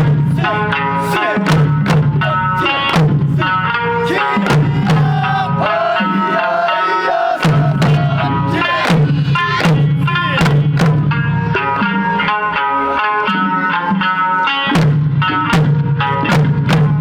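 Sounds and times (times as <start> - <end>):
taiko drums beating: 0.0 - 6.6, 7.4 - 11.5, 14.8 - 17.0
person singing folk melody: 0.0 - 10.4.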